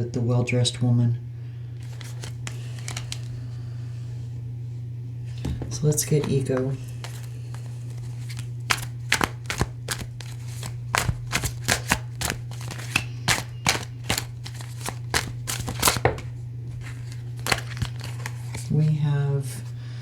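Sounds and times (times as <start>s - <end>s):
steady low hum: 0.0s - 20.0s
cards being shuffled: 1.8s - 3.6s, 5.3s - 18.8s.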